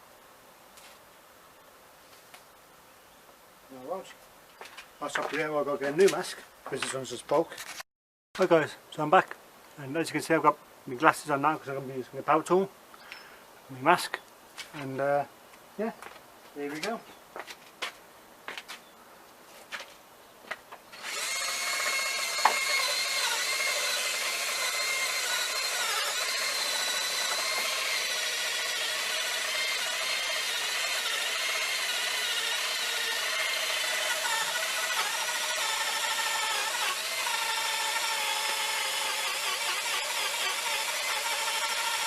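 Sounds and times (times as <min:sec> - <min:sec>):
drill with wire brush whining: 0:20.9 - 0:42.0.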